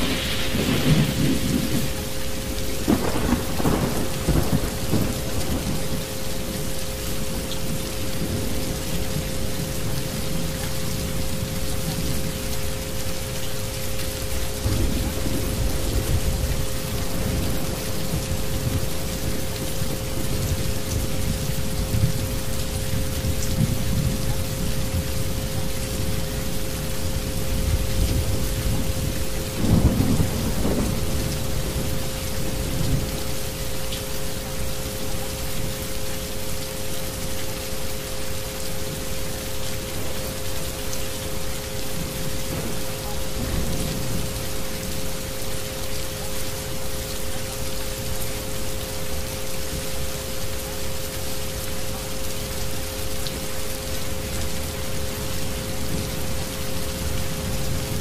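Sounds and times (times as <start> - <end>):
thunder rumbling: 0.0 - 6.1, 14.6 - 22.5, 27.1 - 33.4, 42.0 - 44.9
rain falling steadily: 0.0 - 58.0.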